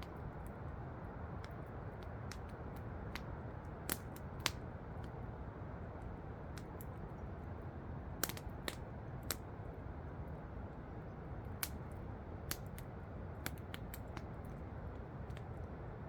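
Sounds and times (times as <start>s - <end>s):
campfire crackling and popping: 0.0s - 5.3s, 6.0s - 7.3s, 8.1s - 9.6s, 11.4s - 15.7s.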